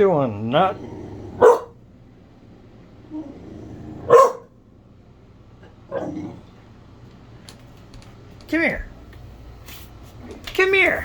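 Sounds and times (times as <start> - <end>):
puppy barking: 1.4 - 1.8, 4.0 - 4.6.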